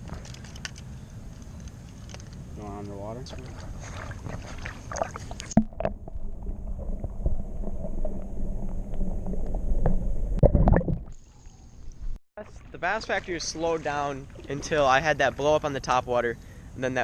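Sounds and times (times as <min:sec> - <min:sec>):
churning water swirl: 0:03.0 - 0:10.4, 0:11.2 - 0:16.3.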